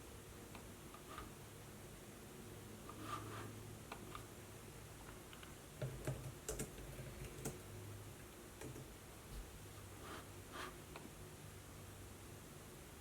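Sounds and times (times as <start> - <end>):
laptop keyboard typing: 5.3 - 7.6.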